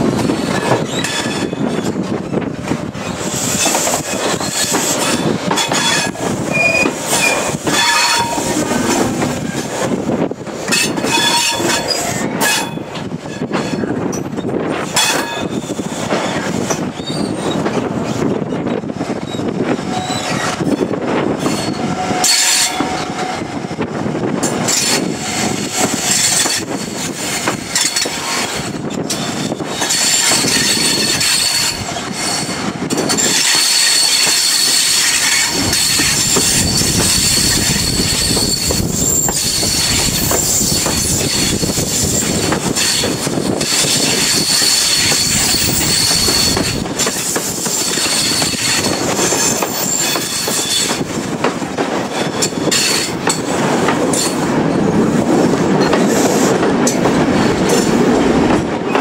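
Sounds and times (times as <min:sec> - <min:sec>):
train running noise: 0:00.0 - 0:59.0
high-pitched squeal: 0:29.8 - 0:51.0.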